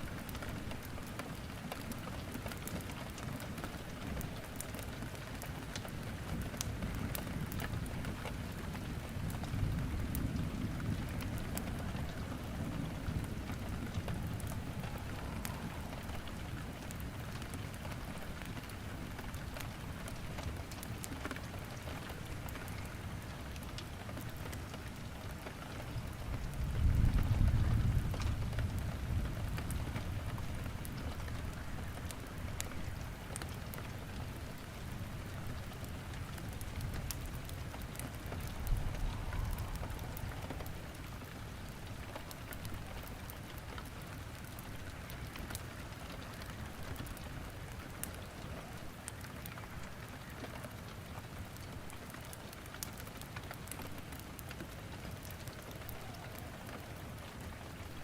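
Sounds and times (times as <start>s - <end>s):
firewood crackling: 0.0s - 58.0s
steady rain: 0.0s - 58.0s
low rumble: 38.4s - 41.3s.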